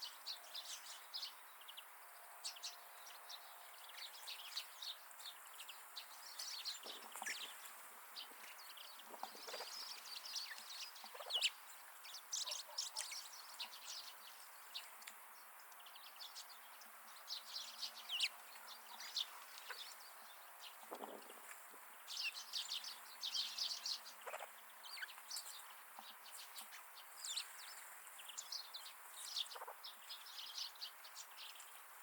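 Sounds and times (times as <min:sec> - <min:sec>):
small birds chirping: 0:00.0 - 0:32.0
partridge calls: 0:06.3 - 0:07.6, 0:08.2 - 0:11.6, 0:20.7 - 0:27.6, 0:29.2 - 0:30.0.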